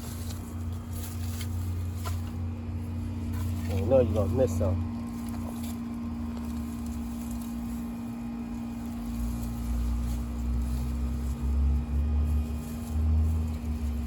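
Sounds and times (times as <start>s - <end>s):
low rumble: 0.0s - 14.0s
motor humming: 0.0s - 14.0s.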